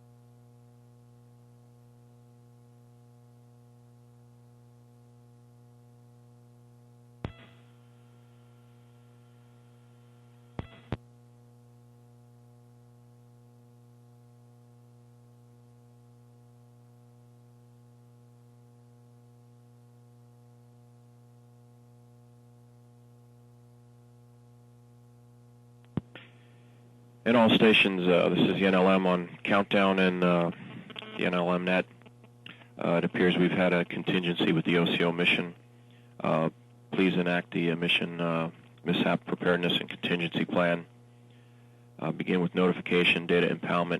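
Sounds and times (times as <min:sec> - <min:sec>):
electrical hum: 0:00.0 - 0:43.9
radio channel clicks: 0:30.4 - 0:31.3.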